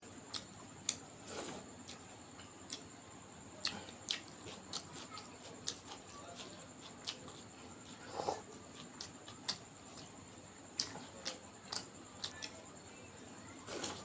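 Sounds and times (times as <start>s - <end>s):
mouth clicks and chewing: 0.3s - 2.9s, 3.6s - 12.6s.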